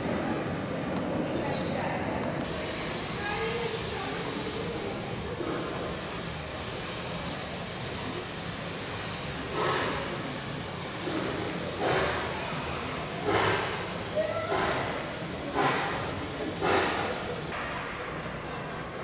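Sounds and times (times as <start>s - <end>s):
hall room noise hiss: 0.0s - 19.0s.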